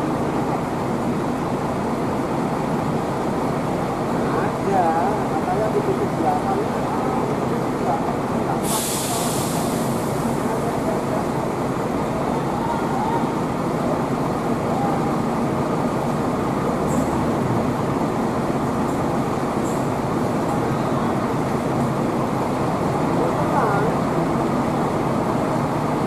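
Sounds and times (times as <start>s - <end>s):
bus engines running: 0.0s - 26.0s
short high hisses: 8.6s - 10.4s.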